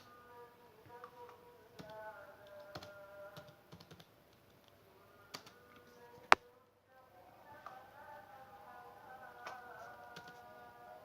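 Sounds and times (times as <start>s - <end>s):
computer keyboard keystrokes: 1.8s - 4.5s, 5.3s - 5.6s, 10.2s - 10.4s.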